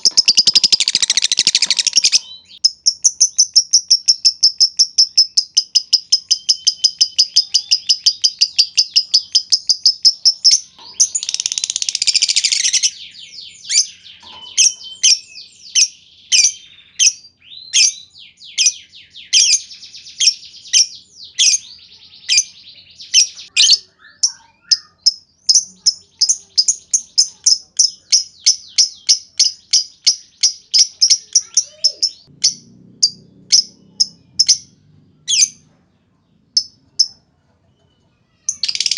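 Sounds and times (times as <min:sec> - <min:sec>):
lovebird harsh chatter: 0:00.0 - 0:02.3, 0:30.8 - 0:34.7, 0:38.4 - 0:38.9
lovebird high chirps: 0:00.0 - 0:35.7, 0:37.8 - 0:38.9.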